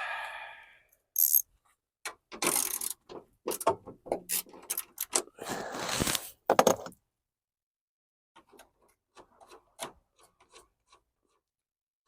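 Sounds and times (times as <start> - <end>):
parts scraping and rattling: 2.3 - 5.4
hand ratchet clicking: 2.4 - 3.7.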